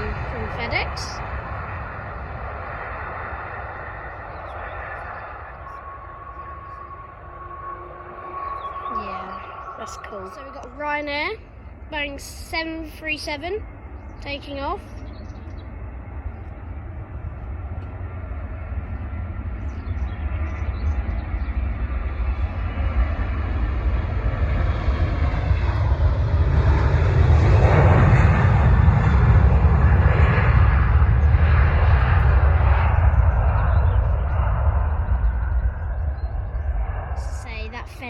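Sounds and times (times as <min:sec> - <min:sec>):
jet engines roaring at takeoff: 0:00.0 - 0:38.0.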